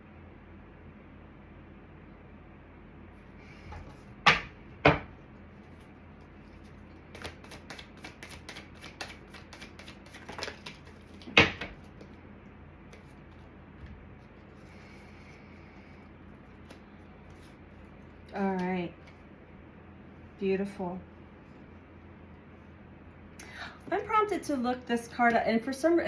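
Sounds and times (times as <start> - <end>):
cards tapping on a table: 3.7 - 5.1
cards clicking and rustling: 6.4 - 12.2, 16.5 - 17.6.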